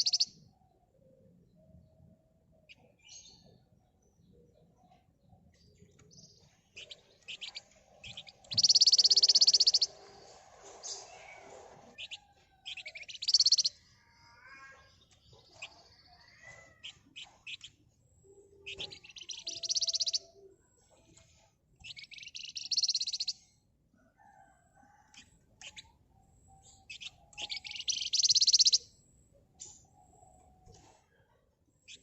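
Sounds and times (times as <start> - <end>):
bird chips and calls: 0.0 - 0.4, 2.6 - 10.1, 10.8 - 23.5, 24.9 - 28.9
bird rapid high trilling: 6.8 - 10.0, 12.0 - 13.7, 18.7 - 20.3, 26.9 - 28.8.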